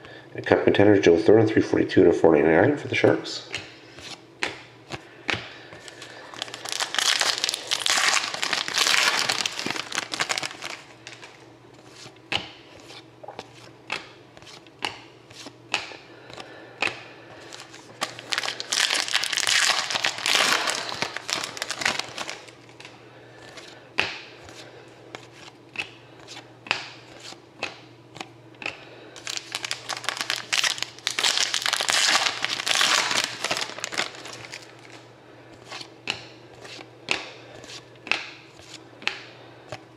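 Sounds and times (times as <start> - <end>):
cards clicking and tapping: 4.4 - 5.9, 12.3 - 12.6, 13.2 - 17.0, 25.2 - 28.8, 35.8 - 39.8
foil wrappers crinkling and tearing: 5.8 - 11.4, 17.4 - 23.7, 29.2 - 35.9.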